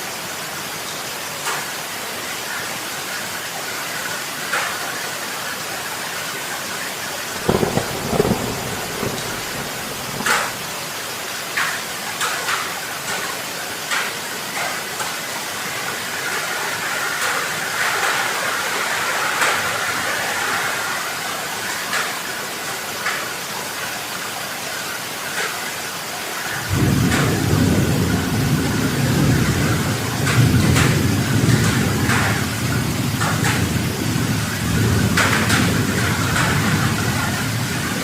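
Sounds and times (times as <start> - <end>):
heavy rain hissing: 0.0 - 38.0
deep rushing noise: 7.4 - 10.7.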